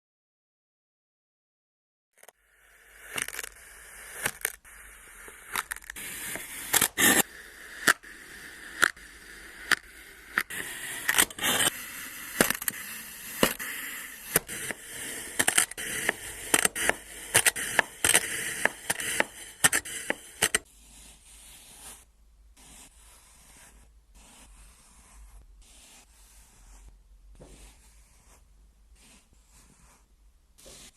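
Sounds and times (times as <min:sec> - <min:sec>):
sand being cut crunching: 0:02.8 - 0:20.6.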